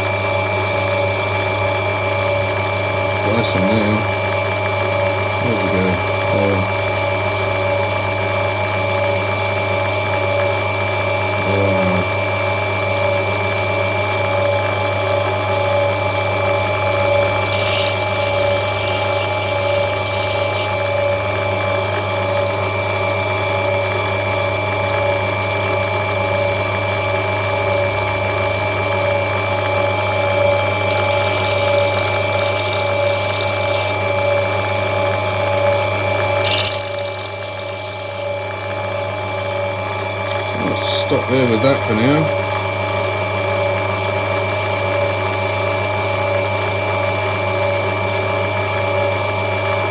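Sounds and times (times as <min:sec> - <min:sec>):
grinding machine humming: 0:17.1 - 0:21.0, 0:30.6 - 0:34.4, 0:36.4 - 0:38.4
stone hissing against grinding wheel: 0:17.4 - 0:20.8, 0:30.8 - 0:34.0, 0:36.4 - 0:38.3.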